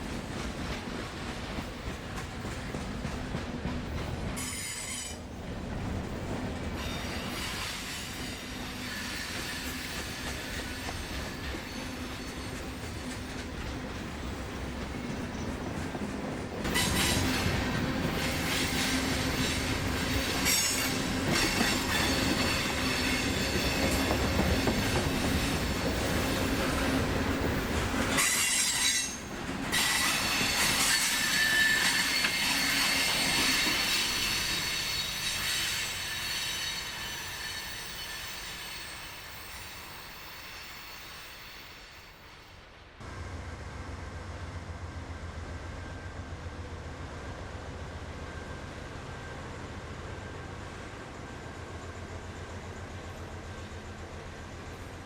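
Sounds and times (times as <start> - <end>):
steel wheels squealing on rail: 4.3 - 5.6, 6.6 - 16.0, 16.6 - 42.7
diesel locomotive engine running: 43.0 - 55.0.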